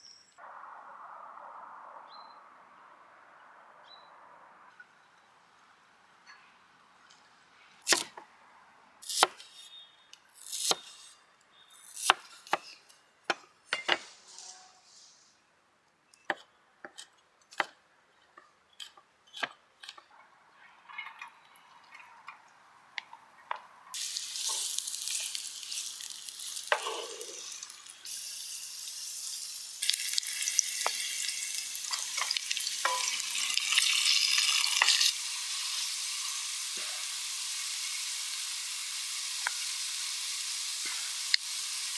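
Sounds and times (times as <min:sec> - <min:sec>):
food sizzling in oil: 0:24.0 - 0:41.9
cooking utensils clicking: 0:31.8 - 0:35.1.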